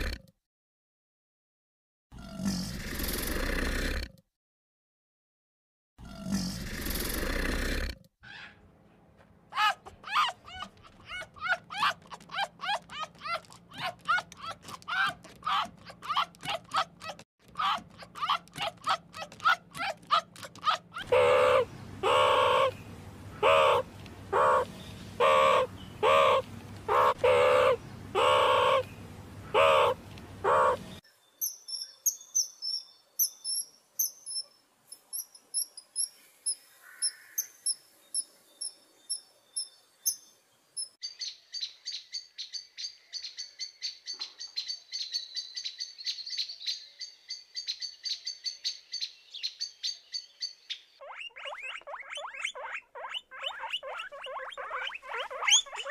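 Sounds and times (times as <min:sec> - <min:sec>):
meerkat calling: 0:09.6 - 0:22.8, 0:23.4 - 0:28.8, 0:29.5 - 0:30.9, 0:51.0 - 0:55.9
sunbird trill: 0:31.2 - 0:52.5
kingfisher high chirps: 0:49.7 - 0:55.9.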